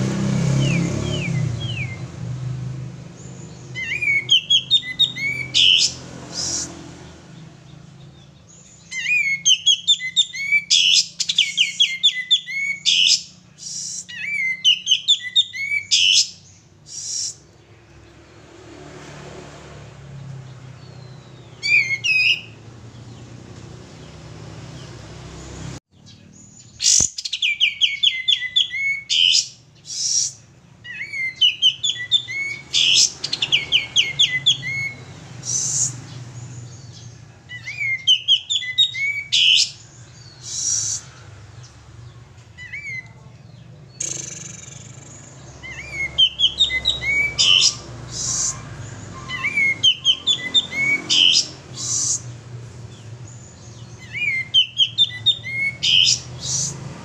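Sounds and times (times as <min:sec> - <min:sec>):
bulbul singing chirping phrases: 0:00.0 - 0:18.0, 0:20.7 - 0:23.4, 0:24.0 - 0:56.9.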